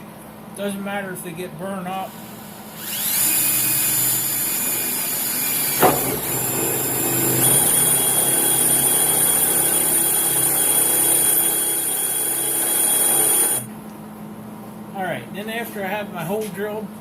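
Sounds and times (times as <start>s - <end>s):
electric drill motor whine: 2.2s - 13.7s.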